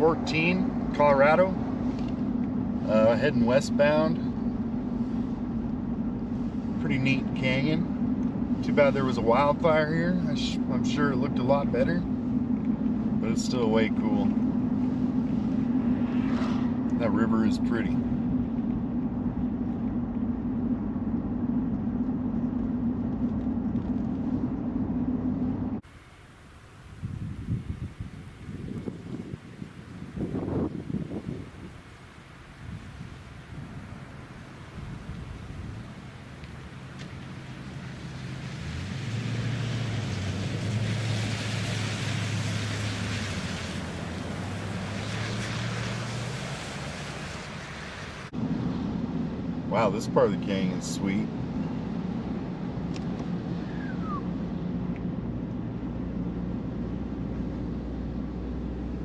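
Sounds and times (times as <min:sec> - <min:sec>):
vehicle road and engine noise: 0:00.0 - 0:59.0
tyre and wind noise: 0:26.5 - 0:36.4.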